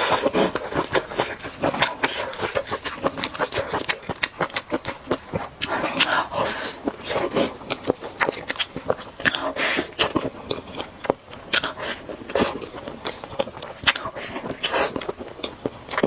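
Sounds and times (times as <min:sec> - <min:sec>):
person chewing noodles: 0:00.0 - 0:16.0
wet mouth clicks and smacking: 0:00.0 - 0:16.0.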